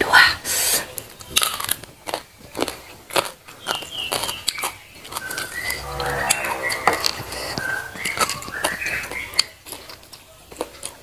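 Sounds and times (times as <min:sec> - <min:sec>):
crisp crunching and chewing: 0:01.1 - 0:05.3, 0:09.6 - 0:11.0.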